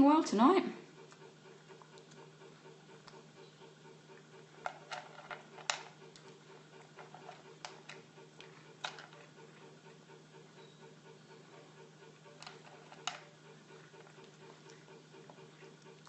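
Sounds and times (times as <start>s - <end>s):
steady low hum: 0.0s - 16.0s
cat chewing food: 4.0s - 9.8s, 12.3s - 16.0s.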